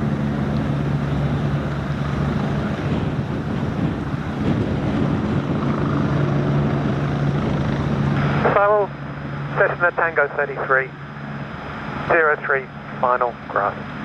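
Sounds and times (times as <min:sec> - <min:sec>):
wind noise on microphone: 0:00.0 - 0:08.6
helicopter engine and rotor: 0:00.0 - 0:14.0.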